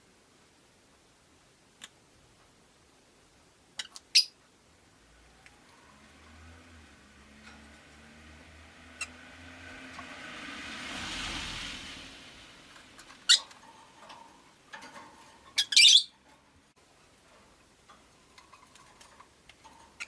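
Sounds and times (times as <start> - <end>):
vehicle passing: 5.0 - 16.7
lovebirds squawking: 15.5 - 16.2.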